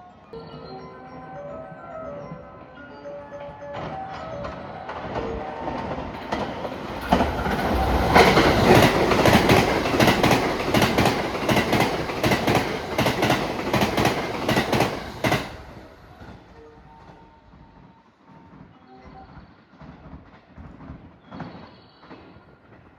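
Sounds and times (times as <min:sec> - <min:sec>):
train wheels clattering: 0:03.8 - 0:16.4.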